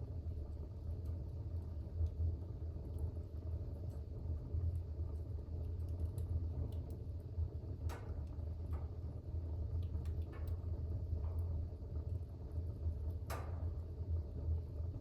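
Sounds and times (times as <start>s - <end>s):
fire crackling and popping: 0.0s - 15.0s
fire flames rumbling: 0.0s - 15.0s.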